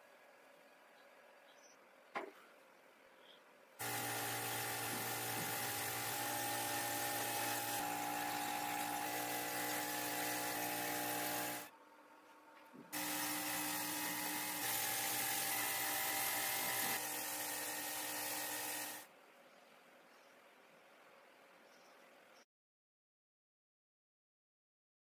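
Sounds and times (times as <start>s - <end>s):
rotary tool high-speed whine: 3.8s - 11.7s, 13.0s - 19.1s.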